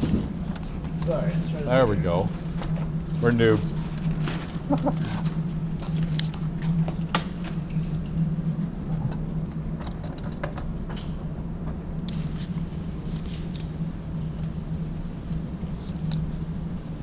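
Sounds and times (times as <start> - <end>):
low droning hum: 0.0 - 17.0.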